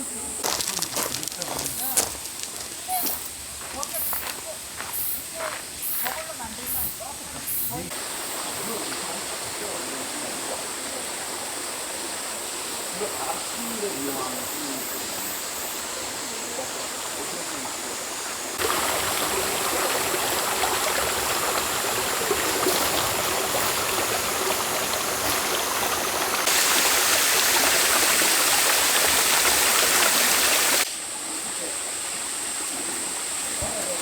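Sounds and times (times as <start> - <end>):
stream water rushing: 7.9 - 34.0.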